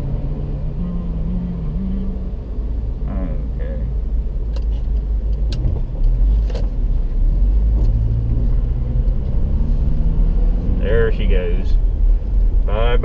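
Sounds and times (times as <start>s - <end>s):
car engine rumble from inside: 0.0s - 13.0s
road traffic: 0.0s - 13.0s.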